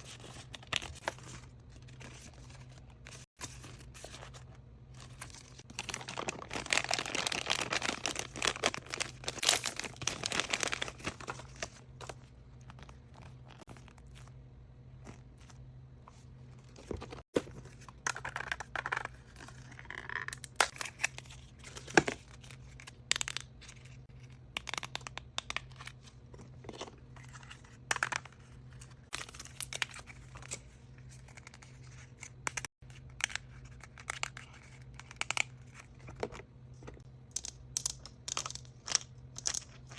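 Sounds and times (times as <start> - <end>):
wrapping paper tearing and crinkling: 5.5 - 11.4.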